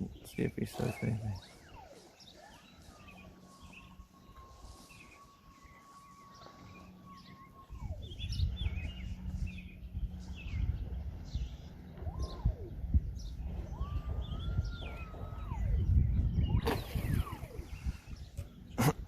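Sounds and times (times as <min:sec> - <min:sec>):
birds chirping and calling: 0:00.0 - 0:19.0
low rumbling noise: 0:00.0 - 0:19.0
whistle-like tone sliding down: 0:01.7 - 0:08.4.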